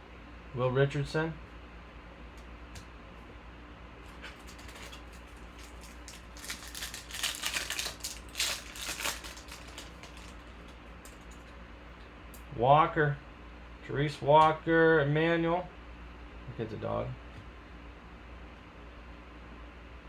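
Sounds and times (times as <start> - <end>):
steady low hum: 0.0 - 20.0
foil wrapper crinkling: 4.1 - 11.5.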